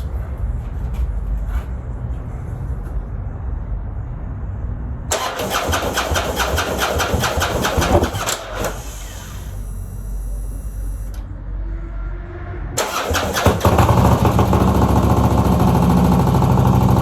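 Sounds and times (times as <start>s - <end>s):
motorcycle electric starter cranking: 5.1s - 10.0s, 12.8s - 17.0s.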